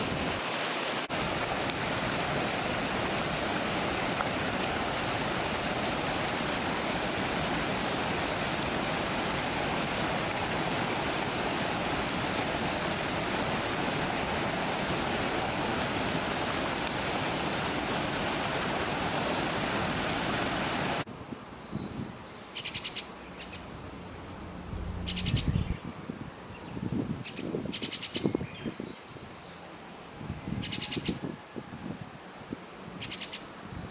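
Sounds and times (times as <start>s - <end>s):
water rushing over a weir: 0.0s - 21.1s
starlings chattering calls: 25.0s - 25.8s.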